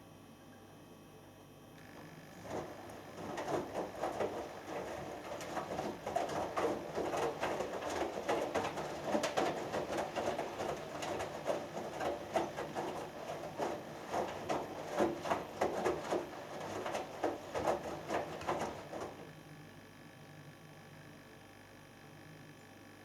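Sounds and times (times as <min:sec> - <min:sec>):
soft knocks and swishes: 0:02.4 - 0:19.2
laundry sloshing in water: 0:02.4 - 0:19.3
washing machine drum turning: 0:02.4 - 0:19.3.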